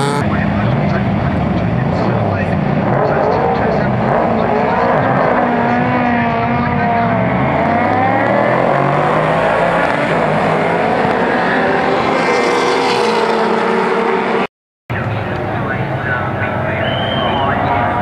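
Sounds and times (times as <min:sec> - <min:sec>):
race cars passing: 0:00.0 - 0:18.0.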